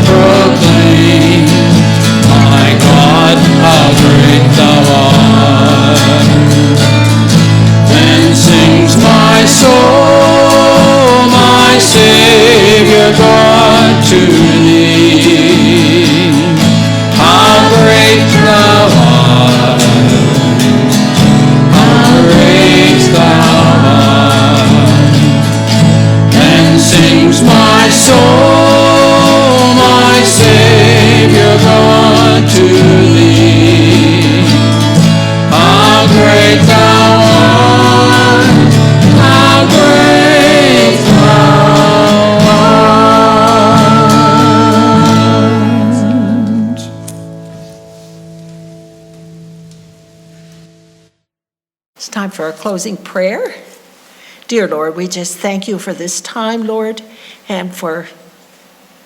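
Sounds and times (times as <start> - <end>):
hymn singing: 0.0 - 47.1
instrumental accompaniment: 0.0 - 51.1.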